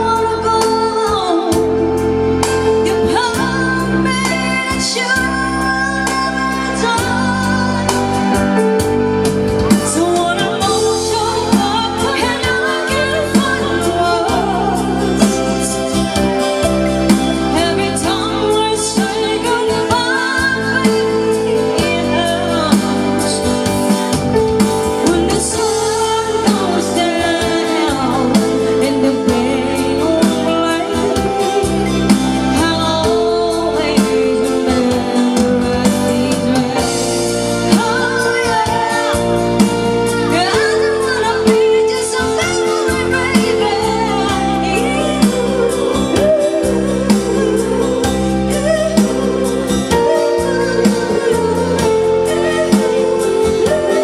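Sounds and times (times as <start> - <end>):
loud music with singing: 0.0 - 54.0.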